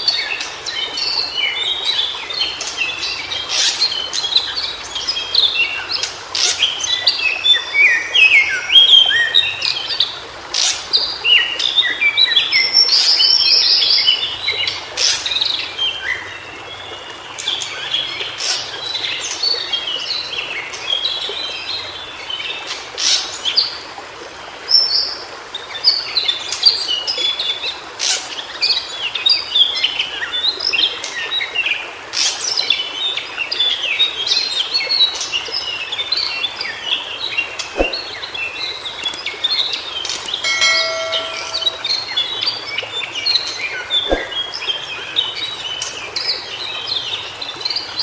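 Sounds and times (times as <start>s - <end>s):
bird singing high chirps: 40.3s - 42.2s.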